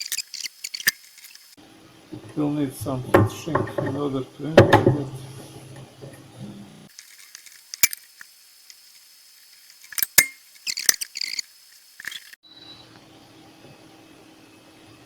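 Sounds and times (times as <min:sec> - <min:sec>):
small parts clicking: 0:00.0 - 0:01.6, 0:06.9 - 0:12.4.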